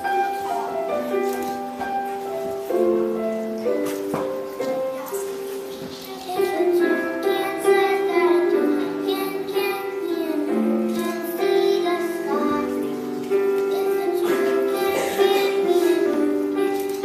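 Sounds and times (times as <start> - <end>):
instrumental accompaniment: 0.0 - 17.0
children singing: 5.7 - 17.0.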